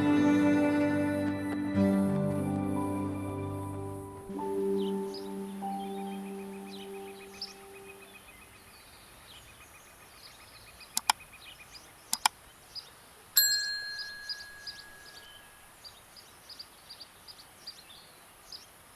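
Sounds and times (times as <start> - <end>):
small birds chirping: 3.6 - 18.9
sharp clicks: 10.9 - 11.2, 12.1 - 12.4
bell-like ding: 13.4 - 15.6.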